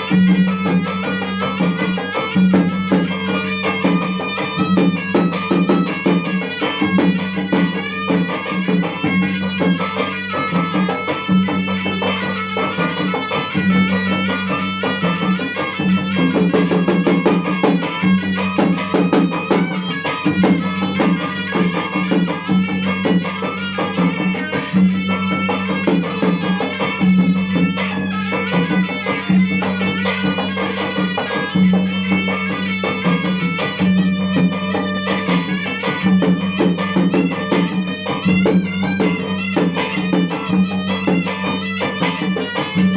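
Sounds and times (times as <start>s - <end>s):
drums in fast rhythm: 0.0s - 42.9s
reedy melody: 0.0s - 42.9s.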